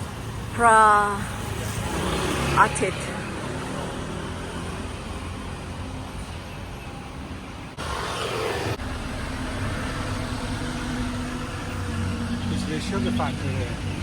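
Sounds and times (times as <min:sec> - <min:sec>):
boat engine droning: 0:07.8 - 0:14.0.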